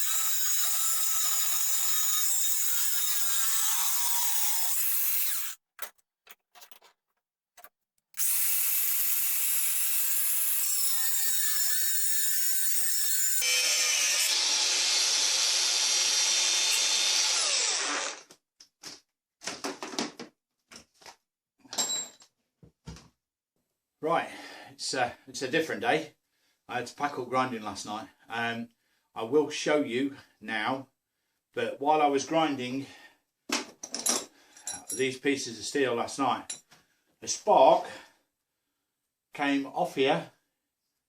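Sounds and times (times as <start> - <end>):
angle grinder cutting steel rod: 0.0 - 5.6, 8.2 - 18.3
metal pieces knocking and clicking: 5.8 - 6.9.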